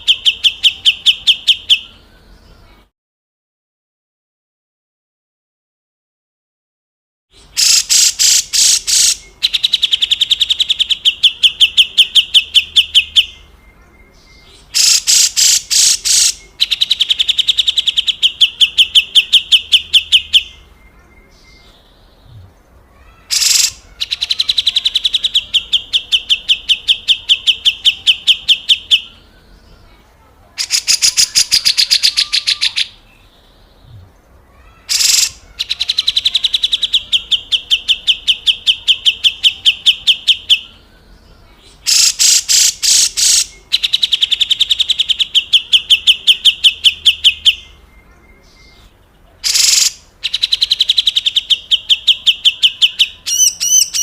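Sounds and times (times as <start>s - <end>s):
bird harsh rattling call: 7.6s - 9.2s, 14.8s - 16.4s, 23.2s - 24.6s, 34.8s - 36.2s, 41.9s - 43.5s.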